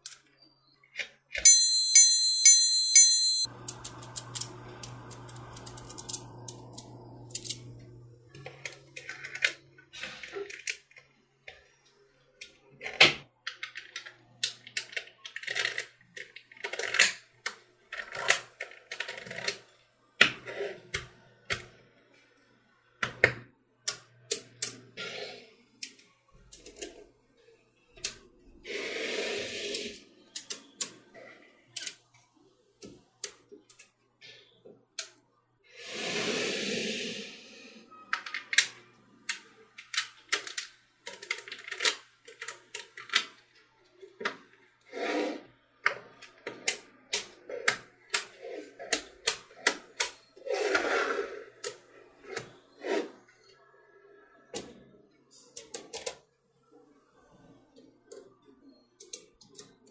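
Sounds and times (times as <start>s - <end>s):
magnetic balls clicking: 3.4s - 7.8s.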